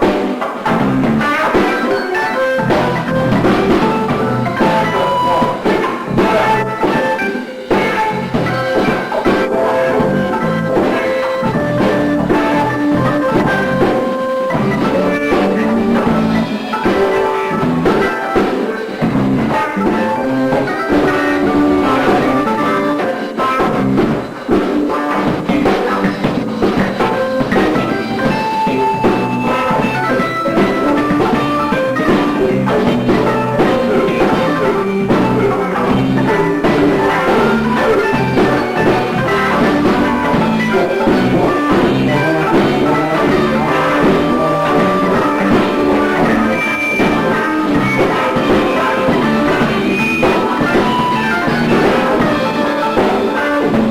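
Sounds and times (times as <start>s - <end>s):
drum kit groove: 0.0s - 53.9s
electric guitar: 0.0s - 53.9s.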